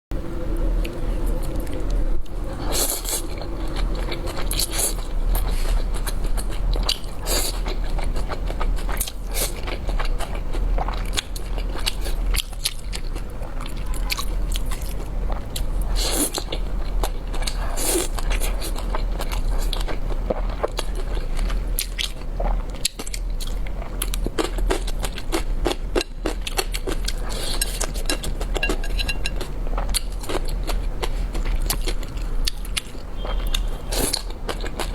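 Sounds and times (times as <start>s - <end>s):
low hum: 0.1s - 8.9s
chewing and eating noodles: 0.6s - 34.9s.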